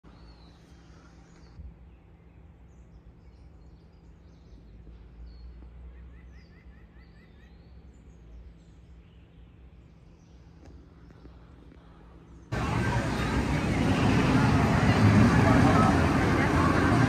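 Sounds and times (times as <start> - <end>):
low background hum: 0.1 - 17.0
birds chirping: 6.3 - 17.0.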